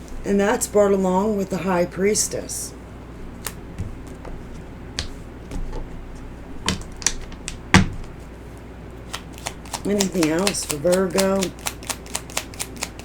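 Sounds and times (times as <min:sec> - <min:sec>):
low room hum: 0:00.0 - 0:13.0
cards clicking and tapping: 0:09.0 - 0:13.0.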